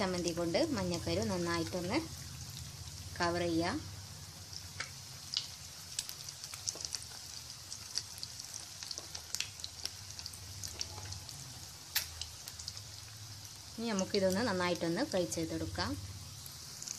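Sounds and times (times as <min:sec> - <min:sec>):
food deep-frying in oil: 0:00.0 - 0:16.9.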